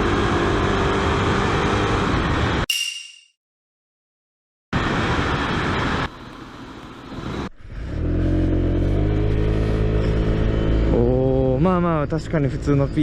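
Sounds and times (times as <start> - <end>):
short ringing tone: 2.7 - 3.4.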